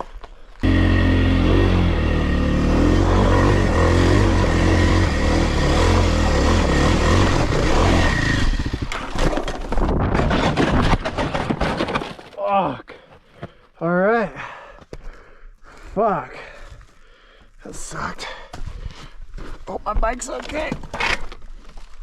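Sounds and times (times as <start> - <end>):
dirt bike engine running hard: 0.6 - 9.1
bike crashing on rock: 7.4 - 12.4.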